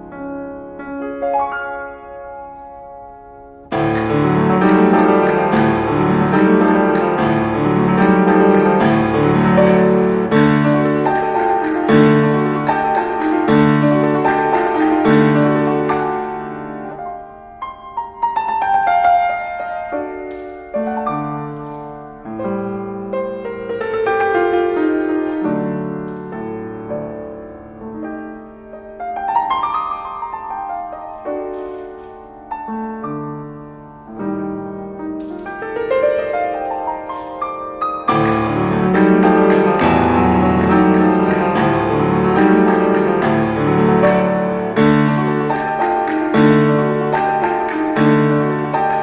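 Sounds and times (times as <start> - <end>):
piano piece with arpeggios: 0.0 - 49.0
sharp percussive clicks: 3.8 - 16.6, 38.1 - 49.0.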